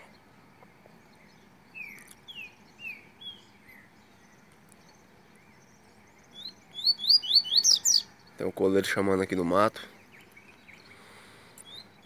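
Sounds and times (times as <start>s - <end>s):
songbird whistling: 1.2s - 4.5s, 5.4s - 8.3s, 10.1s - 12.0s.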